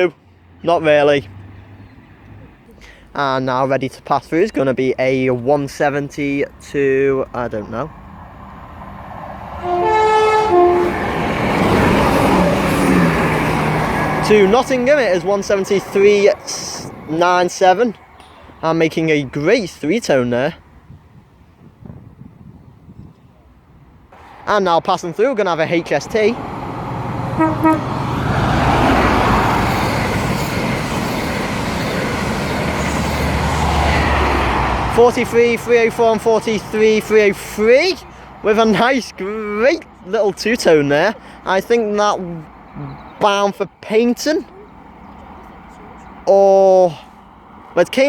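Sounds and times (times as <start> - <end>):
train rumble: 6.1 - 19.8, 24.1 - 38.8
train horn: 9.6 - 11.3, 27.3 - 28.9.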